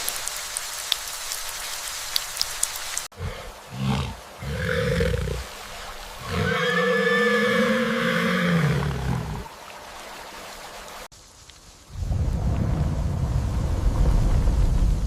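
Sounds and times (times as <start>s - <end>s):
large animal roaring: 3.2s - 5.5s, 6.2s - 9.5s.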